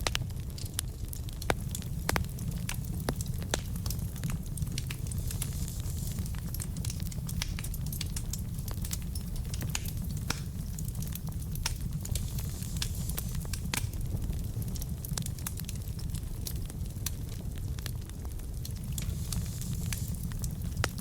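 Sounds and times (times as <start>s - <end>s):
fire rumbling: 0.0s - 21.0s
logs crackling and popping: 0.0s - 21.0s.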